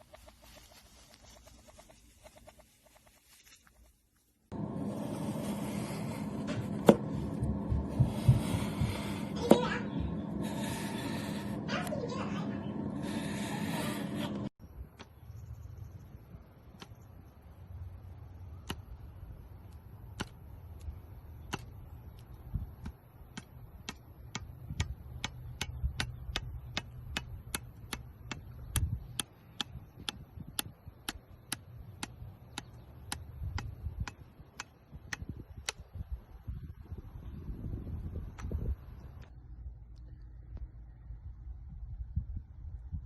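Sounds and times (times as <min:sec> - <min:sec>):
low rumble: 0:04.5 - 0:14.5.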